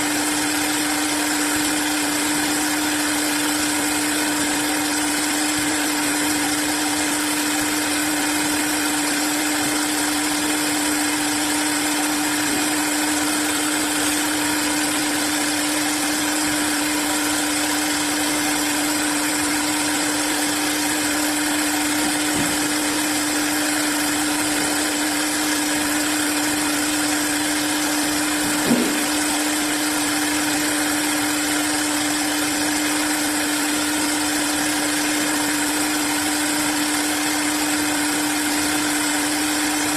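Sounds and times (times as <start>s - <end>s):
wood turning lathe running: 0.0s - 39.9s
brief knock: 28.6s - 29.1s.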